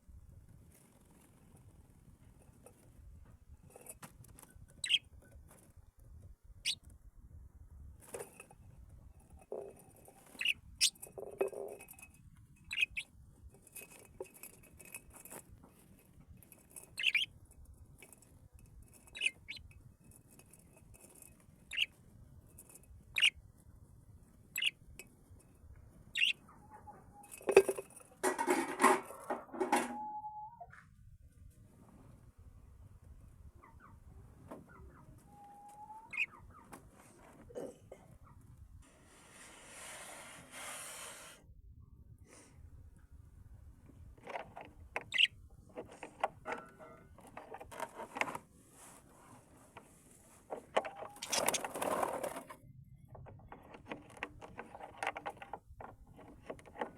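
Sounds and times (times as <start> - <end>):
birds chirping: 4.8 - 5.1, 10.2 - 11.8, 12.6 - 13.1, 16.8 - 17.3, 19.0 - 19.7, 21.6 - 22.0, 23.1 - 23.4, 24.5 - 24.8, 26.1 - 27.4, 33.6 - 36.7, 45.0 - 45.4, 50.7 - 51.8.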